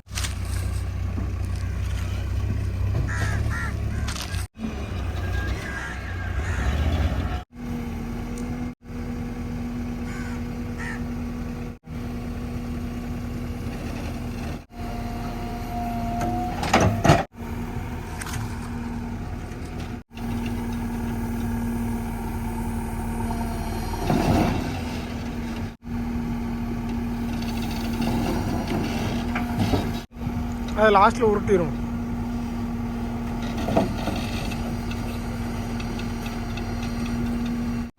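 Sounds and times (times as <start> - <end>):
diesel engine running: 0.0 - 37.9.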